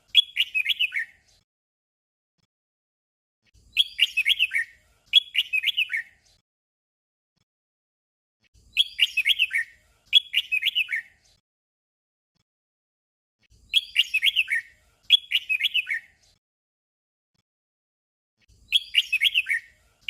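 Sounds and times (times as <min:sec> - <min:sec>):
bird singing warbled phrases: 0:00.0 - 0:01.4, 0:03.5 - 0:06.4, 0:08.5 - 0:11.4, 0:13.5 - 0:16.4, 0:18.4 - 0:20.0.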